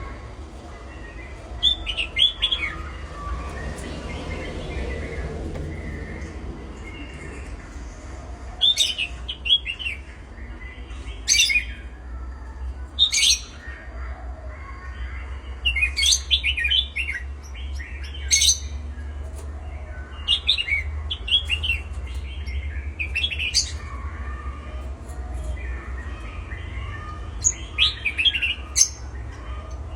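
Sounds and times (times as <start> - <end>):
steady low hum: 0.0 - 20.2
birds chirping: 0.0 - 29.9.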